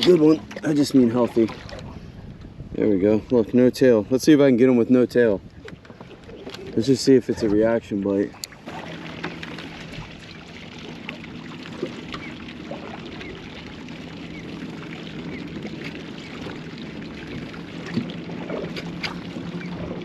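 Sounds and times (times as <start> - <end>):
water lapping against boat hull: 0.0 - 20.0
low hum: 8.5 - 20.0.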